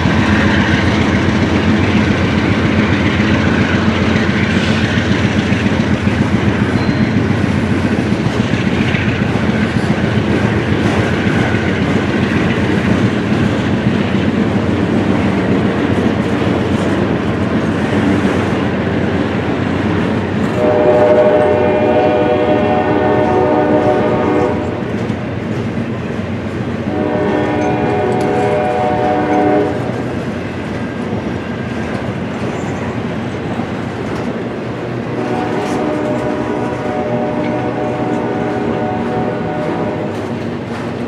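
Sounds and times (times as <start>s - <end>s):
train wheels rumbling on rails: 0.0s - 41.0s
locomotive horn: 20.6s - 24.9s, 26.9s - 30.0s, 35.1s - 40.4s.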